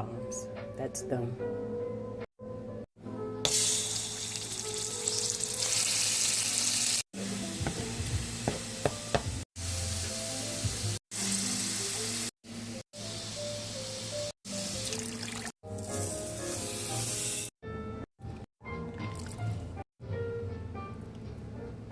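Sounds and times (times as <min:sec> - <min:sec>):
background music: 0:00.0 - 0:06.2, 0:07.2 - 0:21.9
food sizzling in a hot pan: 0:03.5 - 0:17.5.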